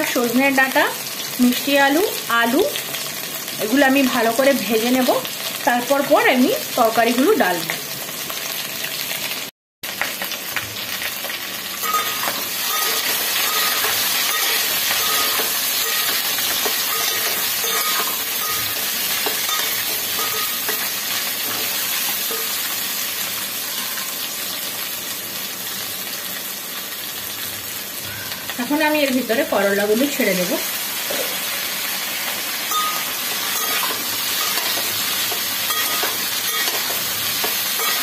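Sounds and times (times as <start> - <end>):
vegetables sizzling in hot oil: 0.0 - 38.0
steel spatula stirring: 11.8 - 22.8, 32.7 - 38.0.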